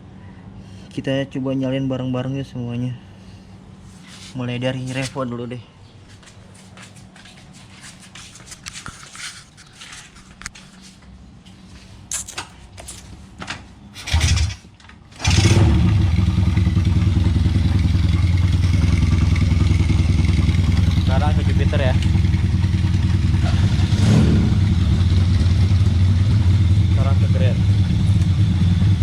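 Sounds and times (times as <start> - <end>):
motorcycle engine cranking: 14.0 - 17.2
motorcycle engine idling: 15.2 - 29.0.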